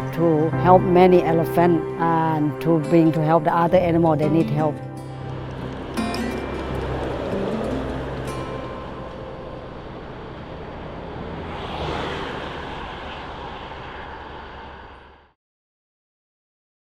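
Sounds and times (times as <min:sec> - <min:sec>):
vehicle engine running: 0:00.0 - 0:15.2.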